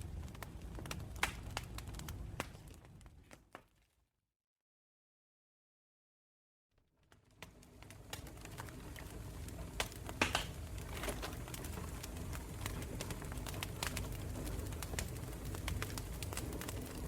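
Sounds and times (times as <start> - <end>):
campfire crackling: 0.0 - 3.5, 7.1 - 17.0
low rumble of flame: 0.0 - 3.6, 7.0 - 17.0.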